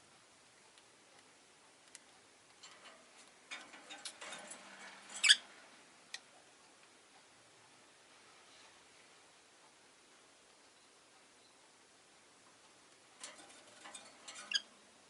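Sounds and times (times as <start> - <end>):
birds clicking and scratching in cage: 1.2 - 6.3, 12.8 - 14.9.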